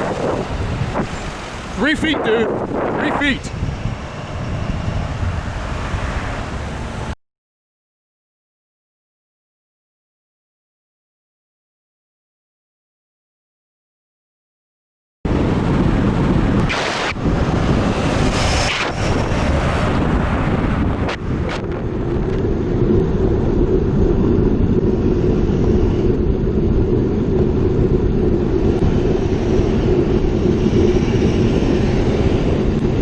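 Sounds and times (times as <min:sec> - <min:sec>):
motor vehicles droning: 0:00.0 - 0:07.2, 0:15.3 - 0:23.7
wind rushing over microphone: 0:00.0 - 0:07.2, 0:15.3 - 0:33.0.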